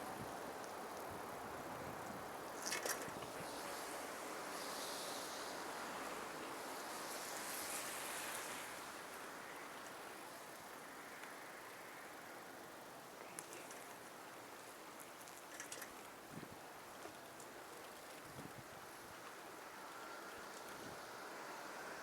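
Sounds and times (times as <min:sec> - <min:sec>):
bicycle tyres on wet pavement: 0:02.6 - 0:10.0.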